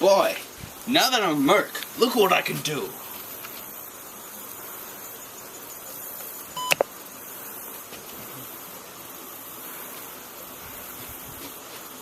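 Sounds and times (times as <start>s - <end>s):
steady hiss: 0.0s - 12.0s
sharp clicks: 6.6s - 6.9s.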